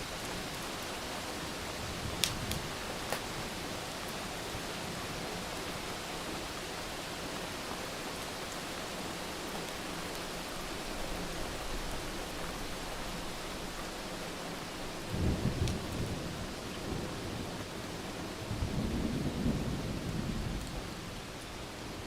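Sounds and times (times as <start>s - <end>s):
heavy rain hissing: 0.0s - 22.0s
wood fire crackling: 2.0s - 4.2s.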